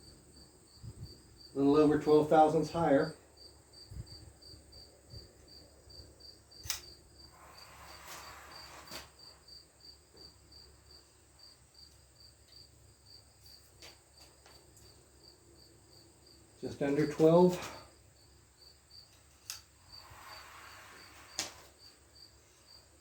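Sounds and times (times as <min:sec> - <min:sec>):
cricket chirping: 0:00.0 - 0:23.0
sharp click: 0:06.6 - 0:07.0.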